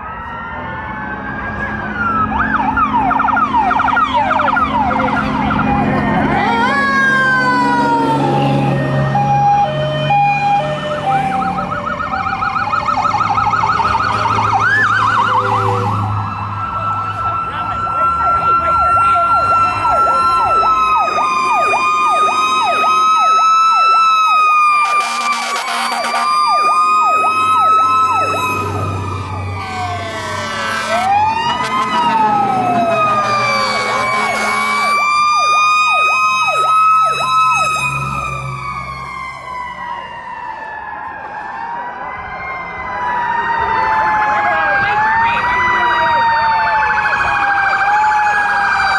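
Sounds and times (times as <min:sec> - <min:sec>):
electronic sirens yelping: 0:00.0 - 0:48.9
mechanical siren wailing: 0:00.0 - 0:48.9
truck engines rumbling: 0:00.0 - 0:48.9
air horn blast: 0:24.8 - 0:26.7, 0:29.1 - 0:35.2.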